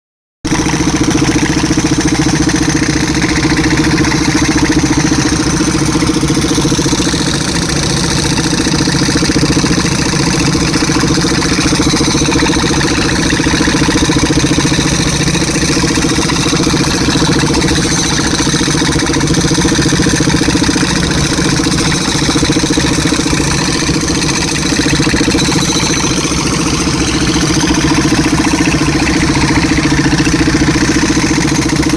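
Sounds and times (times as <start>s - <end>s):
tractor engine driving air compressor: 0.5s - 31.9s.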